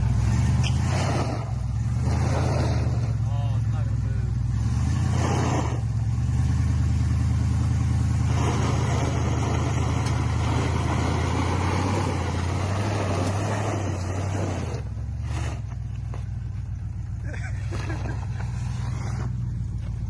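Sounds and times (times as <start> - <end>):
pickup truck engine running: 0.0 - 20.0
rough loud noise: 8.1 - 15.9.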